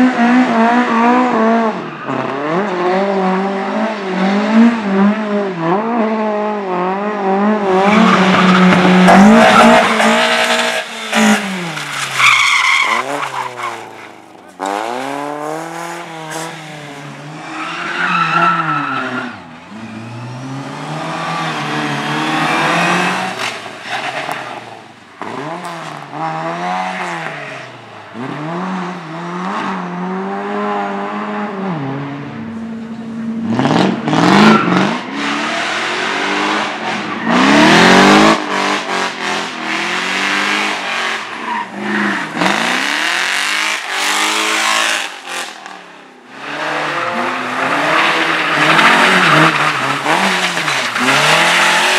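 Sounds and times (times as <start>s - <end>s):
race car engine revving: 0.0s - 27.5s, 32.8s - 51.9s.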